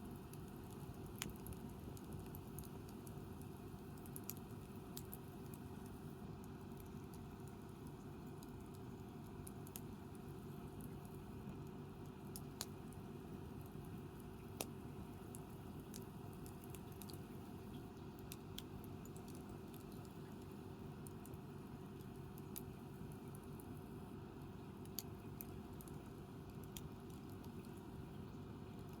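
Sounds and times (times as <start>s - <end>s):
campfire crackling and popping: 0.1s - 11.3s, 12.0s - 23.9s, 24.8s - 27.8s.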